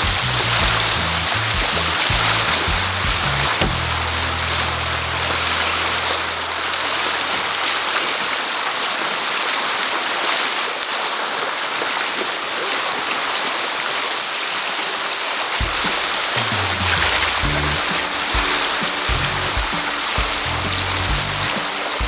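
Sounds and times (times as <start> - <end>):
creek water rushing over rocks: 0.0 - 22.0
background music low notes: 0.1 - 7.8, 15.6 - 22.0.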